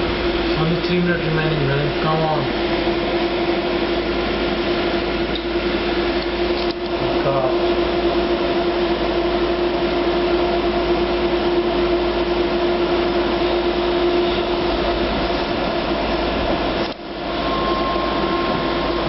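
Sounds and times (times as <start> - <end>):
train carriage hum and rumble: 0.0 - 19.0
mid-pitched tone: 17.3 - 19.0
faint higher tone: 17.4 - 19.0.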